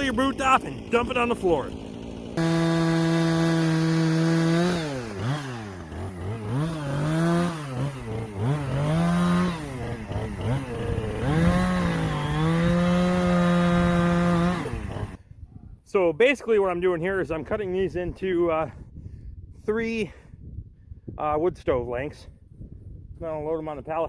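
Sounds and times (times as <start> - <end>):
chainsaw cutting wood: 0.0 - 15.2.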